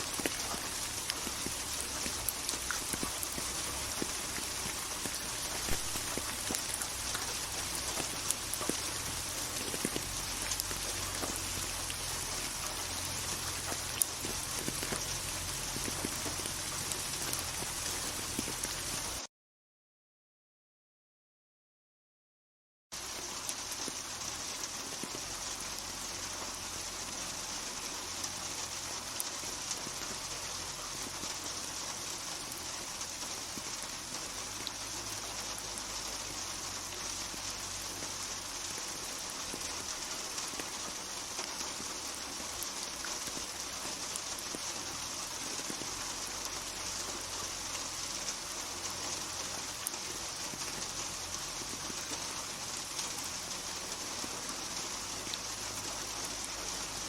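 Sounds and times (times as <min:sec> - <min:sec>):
steady rain falling: 0:00.0 - 0:19.3, 0:23.0 - 0:57.0.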